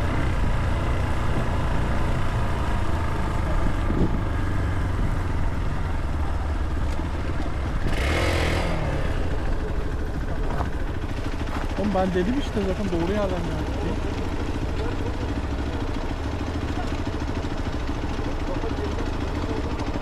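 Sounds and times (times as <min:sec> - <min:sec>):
motorcycle engine rumble: 0:00.0 - 0:20.0
wind noise: 0:03.6 - 0:04.4.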